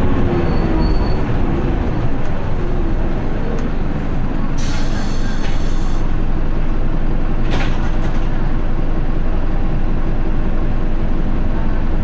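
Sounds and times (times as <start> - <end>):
bus diesel engine running: 0.0 - 12.0
air hiss: 4.6 - 6.1.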